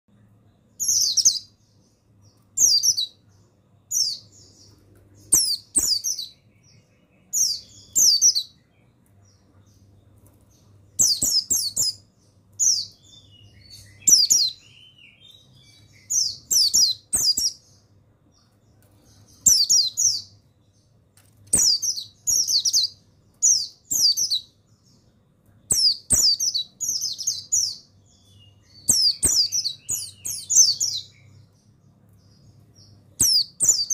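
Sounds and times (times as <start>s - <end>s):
bird twittering: 11.0s - 17.8s, 25.7s - 31.5s, 32.2s - 33.9s.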